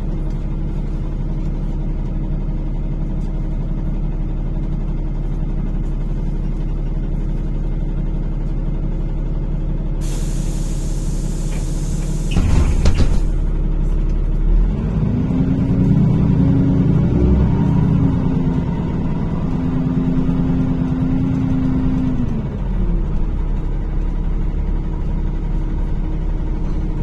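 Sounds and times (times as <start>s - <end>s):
bus engine idling: 0.0s - 14.6s, 15.6s - 27.0s
air brake hiss: 10.0s - 13.4s
pneumatic clicks: 11.2s - 13.6s.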